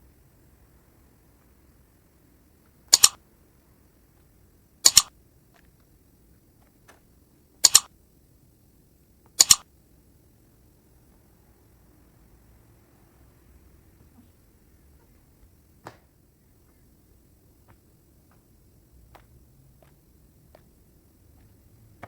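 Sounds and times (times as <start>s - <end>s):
mechanical double clicks: 2.9s - 3.2s, 4.8s - 5.1s, 7.6s - 7.9s, 9.4s - 9.6s.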